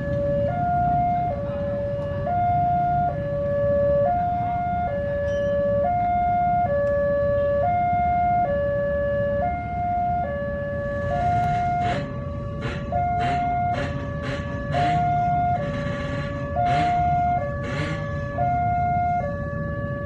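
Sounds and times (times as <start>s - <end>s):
low rumbling traffic: 0.0s - 20.0s
level crossing two-tone alarm: 9.4s - 19.4s
rattling clatter: 11.1s - 18.2s.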